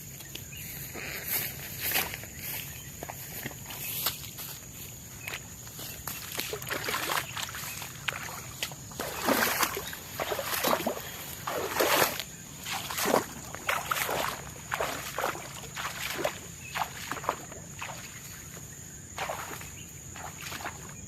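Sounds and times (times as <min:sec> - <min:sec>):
splashing strokes in water: 0:06.0 - 0:21.0.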